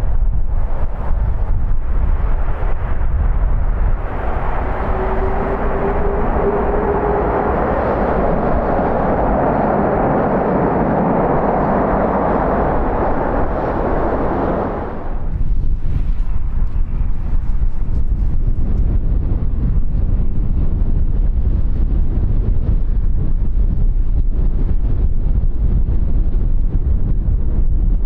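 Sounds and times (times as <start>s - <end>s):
jet engines roaring: 0.0s - 15.4s
wind rumble on microphone: 0.0s - 28.0s
steady tone: 2.2s - 15.3s.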